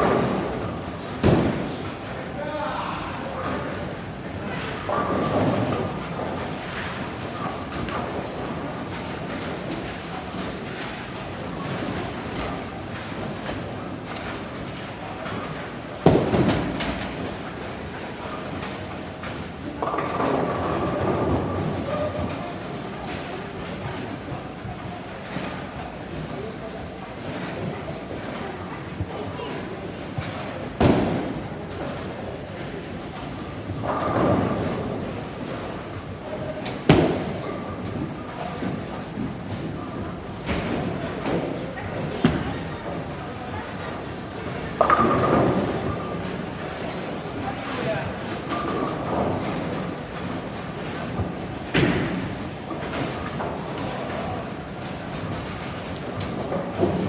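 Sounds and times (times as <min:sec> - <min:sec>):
bowling ball crashing into pins: 0:00.0 - 0:02.0, 0:16.0 - 0:18.0
bowling pins crashing: 0:00.0 - 0:02.4, 0:04.7 - 0:24.2.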